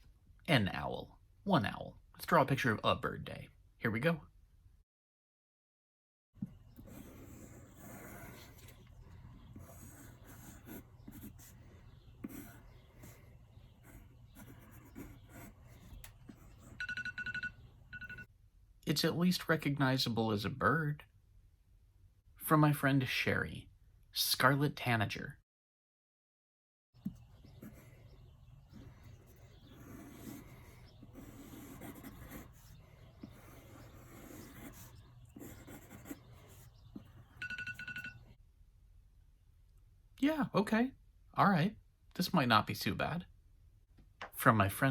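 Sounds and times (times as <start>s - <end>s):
pencil scratching on paper: 6.4s - 16.8s, 27.0s - 37.4s.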